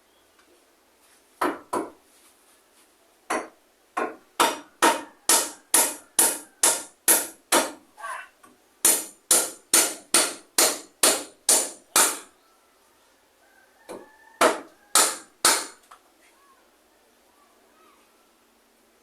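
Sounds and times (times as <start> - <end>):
hammer striking timber: 1.4 - 2.0, 3.3 - 7.8, 8.8 - 12.3, 13.9 - 15.8.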